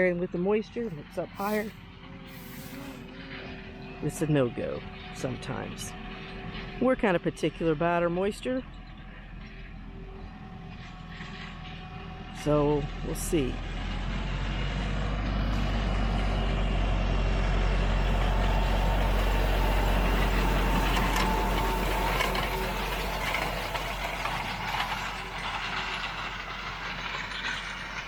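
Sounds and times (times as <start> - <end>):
tractor engine running: 0.8 - 3.9, 8.8 - 28.0
hay rake clattering: 1.3 - 1.7, 17.8 - 28.0.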